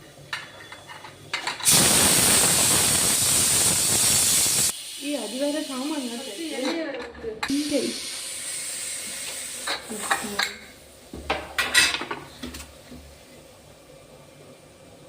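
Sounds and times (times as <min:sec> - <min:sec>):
metal pot and utensils clanking: 0:00.3 - 0:01.8, 0:11.3 - 0:12.6
steam hissing from pressure cooker: 0:01.6 - 0:11.1.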